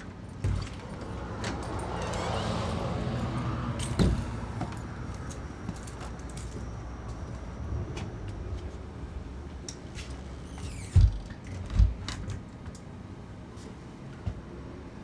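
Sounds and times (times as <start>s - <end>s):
door creaking: 0.4s - 3.2s, 10.4s - 12.4s.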